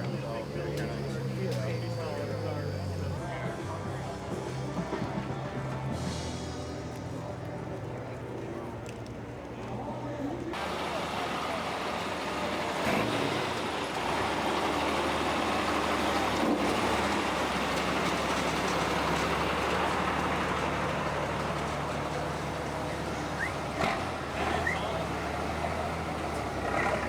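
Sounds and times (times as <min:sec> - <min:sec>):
car engine idling: 0:10.6 - 0:27.0.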